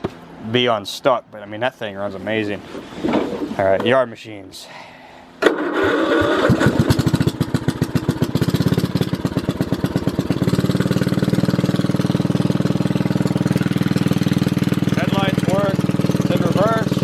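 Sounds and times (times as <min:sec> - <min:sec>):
lawn mower engine starting and idling: 0:05.4 - 0:17.0.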